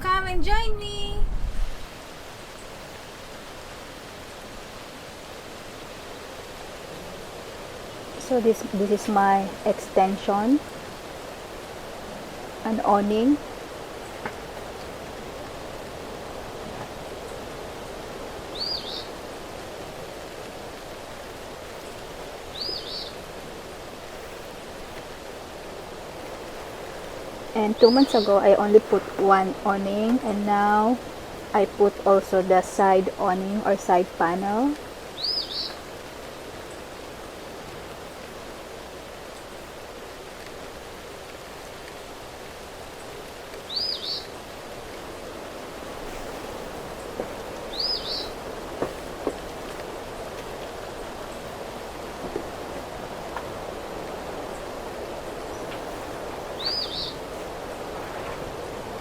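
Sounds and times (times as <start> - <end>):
rain hissing: 0.0 - 59.0
wind: 0.0 - 59.0
bird chirp: 18.5 - 19.2, 21.8 - 23.2, 27.6 - 28.9, 35.2 - 35.8, 43.7 - 44.3, 47.7 - 48.4, 56.6 - 57.3.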